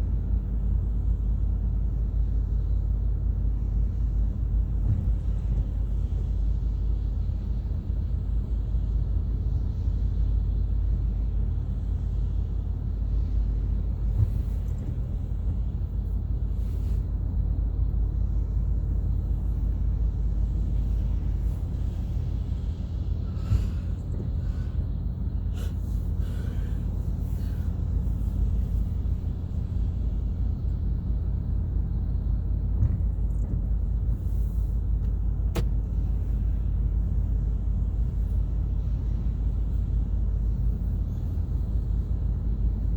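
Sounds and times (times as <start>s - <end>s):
car engine and tyres rumble: 0.0s - 42.9s.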